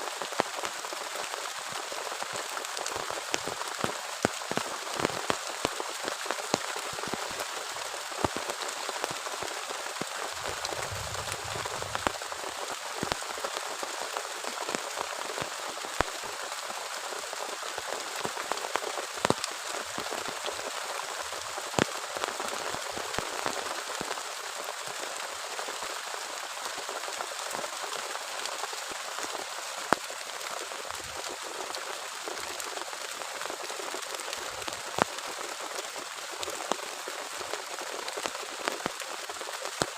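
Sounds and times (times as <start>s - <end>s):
heavy rain: 0.0s - 39.9s
raindrops tapping: 0.2s - 24.5s.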